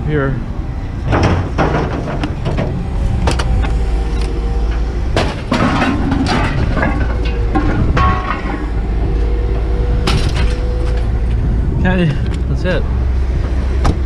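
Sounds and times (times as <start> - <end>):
engine rumble: 0.0 - 14.0
faint hum: 0.0 - 14.0
scrap metal clanging: 1.1 - 11.1.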